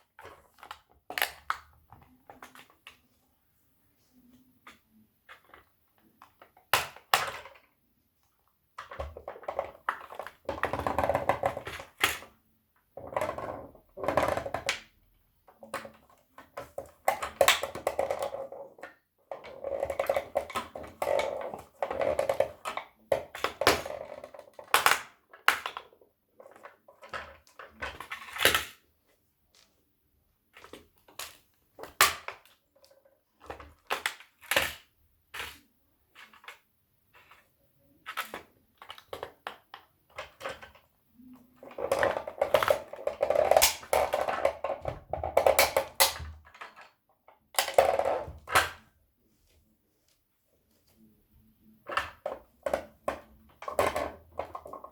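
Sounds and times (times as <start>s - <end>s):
plastic toys crushed underfoot: 41.6s - 48.8s.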